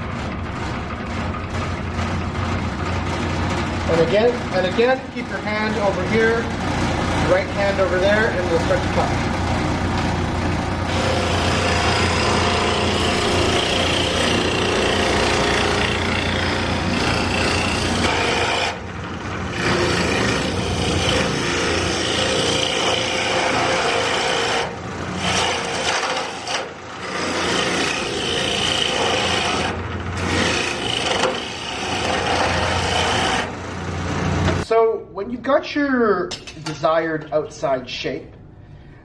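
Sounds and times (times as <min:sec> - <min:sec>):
lathe motor hum: 0:05.5 - 0:34.6
turning tool rasping on wood: 0:10.8 - 0:33.6.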